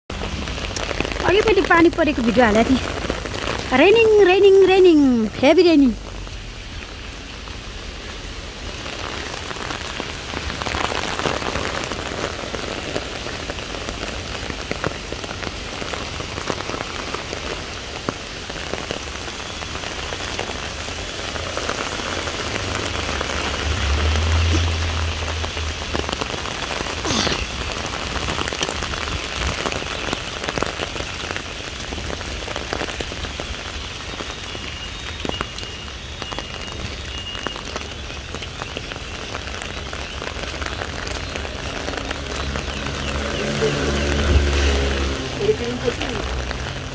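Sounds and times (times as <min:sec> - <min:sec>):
heavy rain falling: 0:00.0 - 0:46.9
low rumble: 0:22.4 - 0:26.9.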